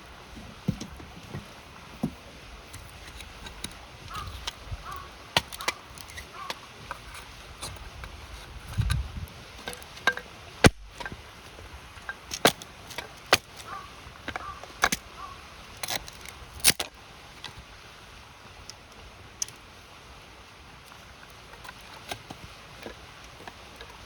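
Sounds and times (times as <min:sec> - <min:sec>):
campfire crackling and popping: 0:02.7 - 0:17.7.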